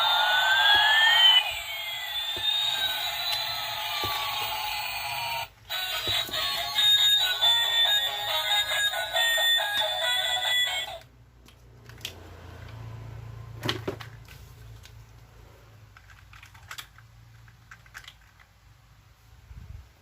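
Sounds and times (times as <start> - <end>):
plastic toy parts clicking: 15.9 - 18.7.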